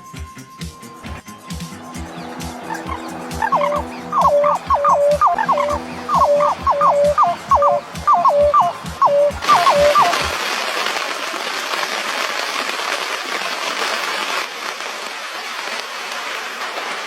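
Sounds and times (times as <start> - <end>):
steady hiss: 0.9 - 17.0
falling whistle-like notes: 1.2 - 10.3.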